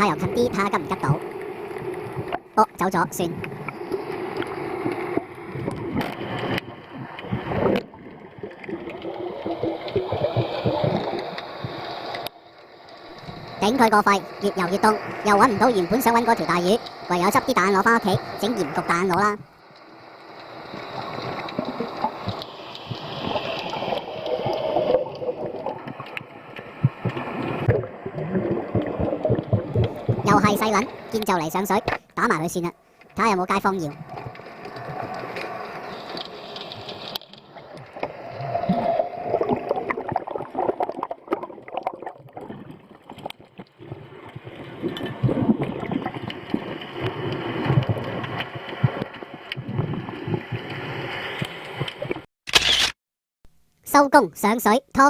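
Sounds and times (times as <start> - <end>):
water sloshing and gurgling: 0.0 - 52.3
knocks and splashes: 21.1 - 32.1, 36.7 - 52.3.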